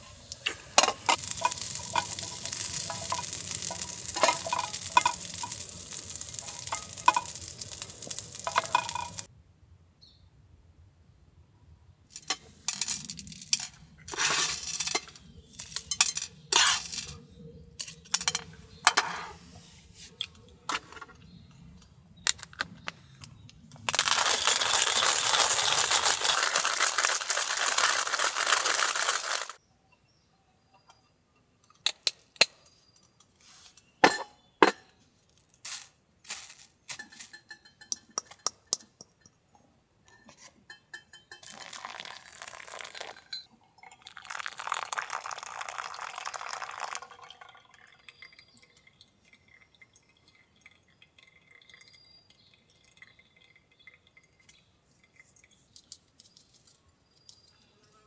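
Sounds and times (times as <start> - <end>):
steady hiss: 0.0 - 9.3
tableware clinking: 0.8 - 9.3, 34.0 - 34.9, 36.9 - 39.4, 40.1 - 43.5.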